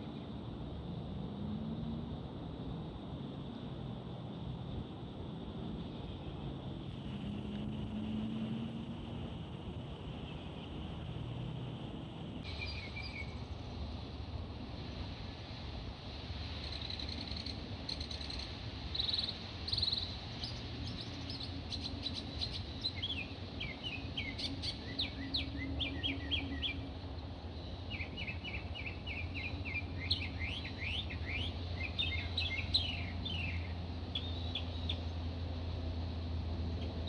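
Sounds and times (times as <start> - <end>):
small birds chirping: 27.8 - 35.1.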